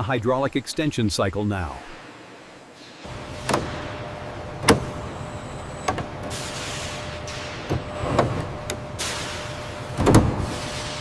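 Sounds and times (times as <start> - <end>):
hydraulic system hum: 1.8 - 11.0
sharp mechanical clunks: 3.1 - 10.7.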